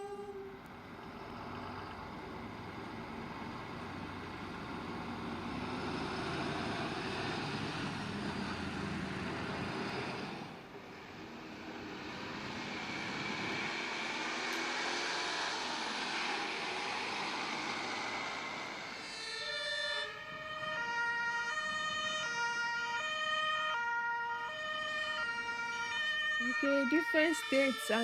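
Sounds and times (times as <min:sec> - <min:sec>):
fire truck road and engine noise: 0:00.0 - 0:28.0
two-tone siren: 0:15.5 - 0:28.0.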